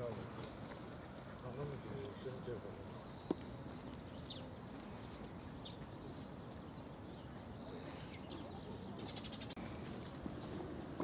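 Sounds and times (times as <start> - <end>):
birds chirping: 0.0 - 11.0
low outdoor rumble: 0.0 - 11.0.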